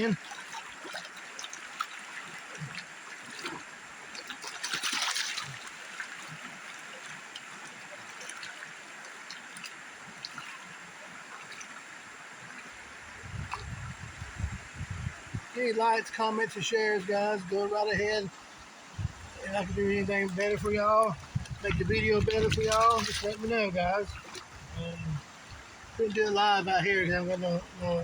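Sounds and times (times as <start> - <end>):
water splash: 0.0 - 10.7, 20.1 - 25.0
river water running: 0.0 - 28.0.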